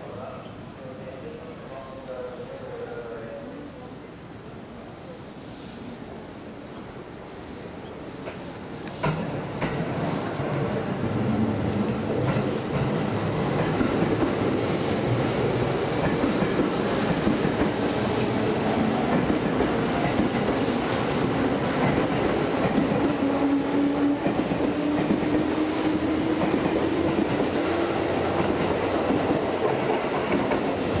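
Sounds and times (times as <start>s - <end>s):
train wheels clattering: 15.8s - 30.9s.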